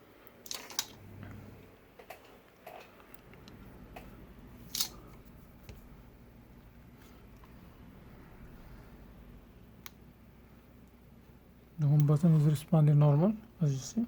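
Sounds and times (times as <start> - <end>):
faint low rumble: 3.1 - 12.7.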